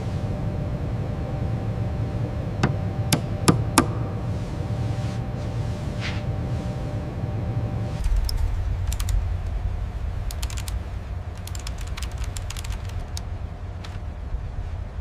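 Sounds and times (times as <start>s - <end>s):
steady low rumble: 0.0s - 15.0s
quick sharp clicks: 11.4s - 13.2s.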